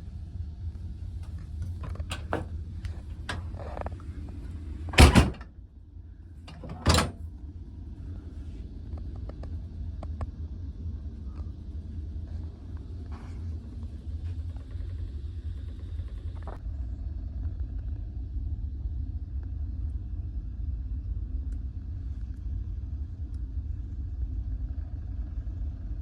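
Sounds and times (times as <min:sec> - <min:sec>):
ferry engines humming: 0:00.0 - 0:05.5, 0:06.4 - 0:07.2.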